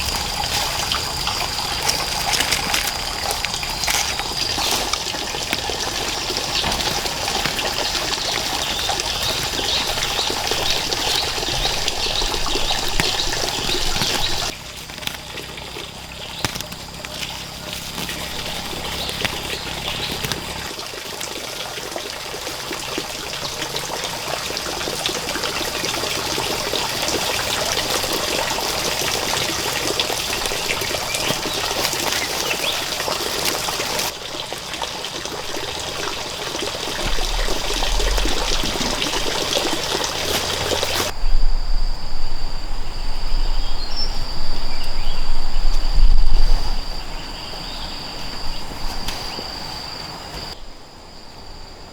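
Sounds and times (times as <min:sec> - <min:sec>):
water trickling: 0:00.0 - 0:41.2
high insect drone: 0:00.0 - 0:51.9
loud low rumbles: 0:36.7 - 0:44.2.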